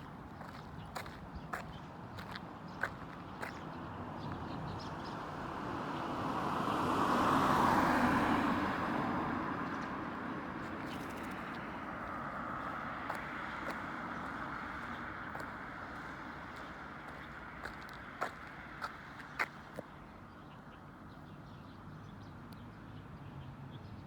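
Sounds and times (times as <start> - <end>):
background traffic noise: 0.0 - 24.0
vehicle passing by: 5.4 - 19.5.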